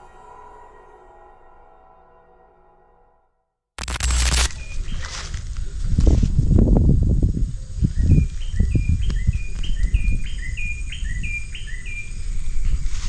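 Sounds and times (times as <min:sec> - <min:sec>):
rustling: 0:03.8 - 0:06.4
bird chirping: 0:04.4 - 0:05.2, 0:07.7 - 0:12.9.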